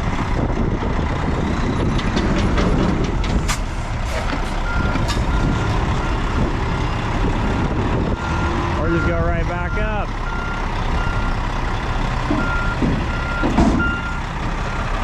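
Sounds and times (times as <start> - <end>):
truck engine rumbling: 0.0 - 15.0
sharp knocks: 12.3 - 14.0
reversing alarm beeps: 12.4 - 14.2.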